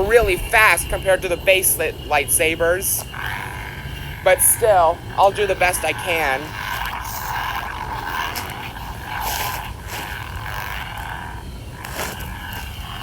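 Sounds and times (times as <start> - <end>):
lightsaber hum and swing swooshes: 4.1 - 13.0.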